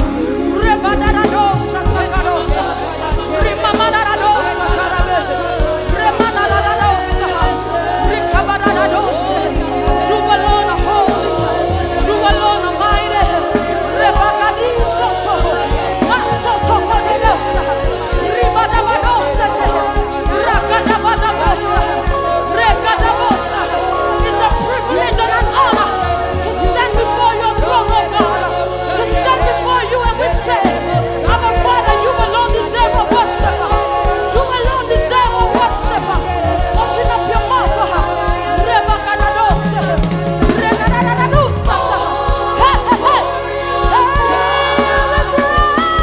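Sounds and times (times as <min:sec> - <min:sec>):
band playing: 0:00.0 - 0:46.0
people singing gospel: 0:00.0 - 0:46.0.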